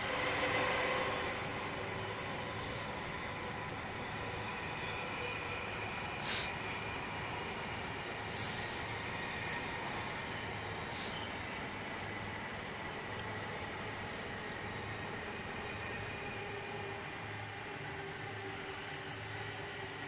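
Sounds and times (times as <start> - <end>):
electric train running: 0.0 - 20.0
short high hisses: 6.2 - 6.6, 10.9 - 11.2.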